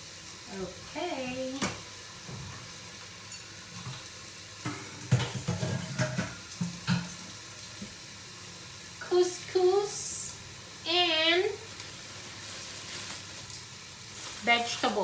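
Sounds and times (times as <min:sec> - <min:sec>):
chicken sizzling in a pan: 0:00.0 - 0:15.0
cookware knocking and clattering: 0:04.7 - 0:07.2.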